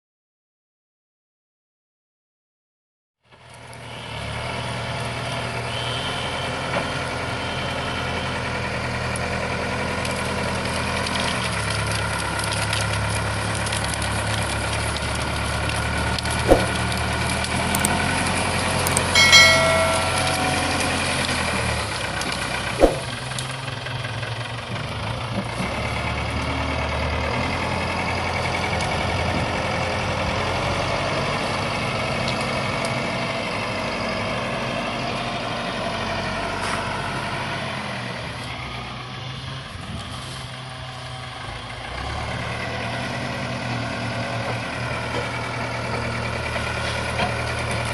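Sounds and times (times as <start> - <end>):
brief shrill tone: 18.9 - 21.4.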